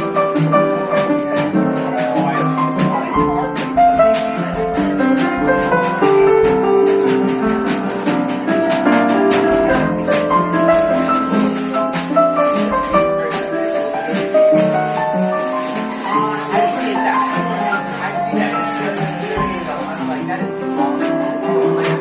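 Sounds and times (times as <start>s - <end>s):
piano chords and melody: 0.0s - 22.0s.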